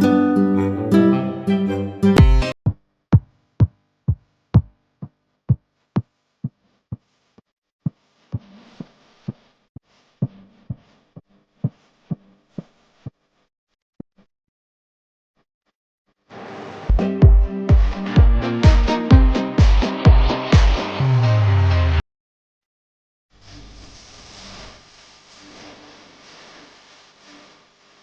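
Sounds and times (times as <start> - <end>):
strummed guitar: 0.0 - 2.5, 17.0 - 20.4
electronic kick drum beat: 2.2 - 5.6, 16.9 - 21.0
faint hiss: 23.4 - 28.0.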